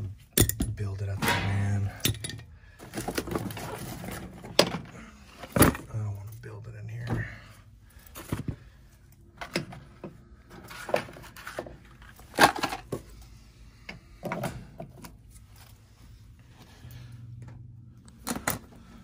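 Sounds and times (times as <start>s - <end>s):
knocks and clatters of tools: 0.0s - 6.1s, 8.1s - 13.2s, 13.8s - 15.2s.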